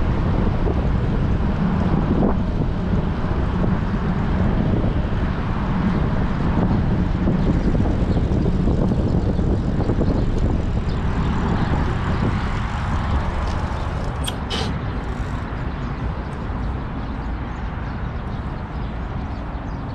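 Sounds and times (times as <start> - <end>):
wind buffeting microphone: 0.0 - 19.9
brief hissing: 14.0 - 15.4.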